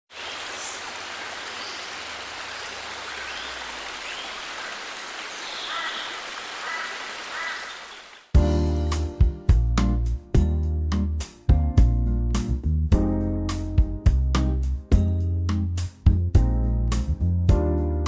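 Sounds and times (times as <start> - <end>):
surf washing onto beach: 0.1 - 8.2
faint gull calls: 5.5 - 8.0.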